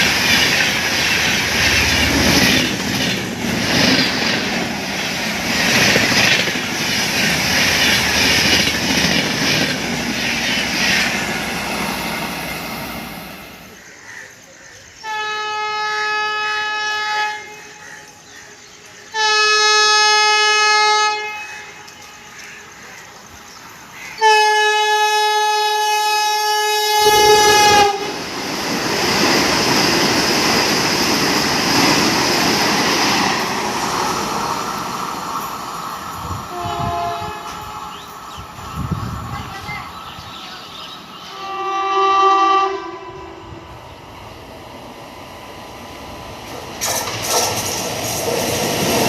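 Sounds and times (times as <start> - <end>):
train rushing past: 0.0 - 13.8, 17.6 - 49.0
train horn blasts: 15.0 - 18.0, 19.1 - 22.5, 24.2 - 28.2, 36.5 - 38.2, 41.3 - 43.7.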